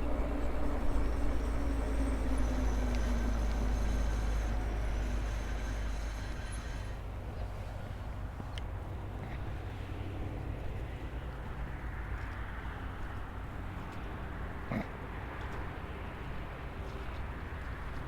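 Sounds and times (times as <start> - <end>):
faint electric motor hum: 0.0 - 8.0
e-bike tyres and drive rumbling: 0.0 - 18.0.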